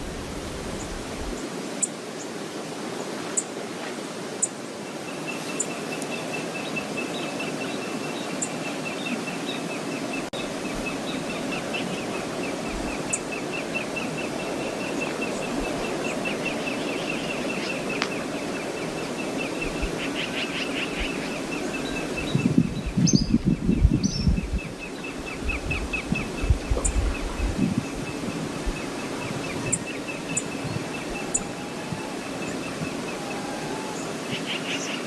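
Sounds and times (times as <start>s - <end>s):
wind buffeting microphone: 0.0s - 1.4s, 10.3s - 34.5s
river and waterfall rushing: 0.0s - 23.2s, 24.1s - 35.0s
small bird chirping: 28.8s - 34.1s.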